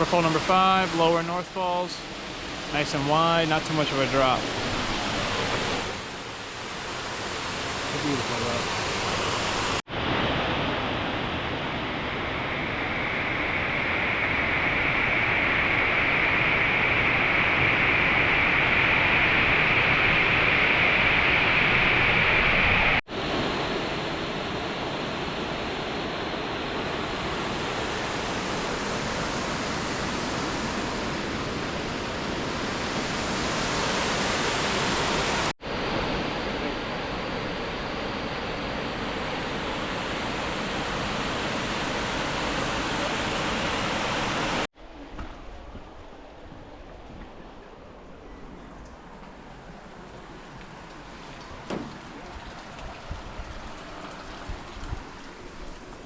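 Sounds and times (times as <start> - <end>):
waterfall rushing: 26.6 - 35.5, 49.6 - 56.0.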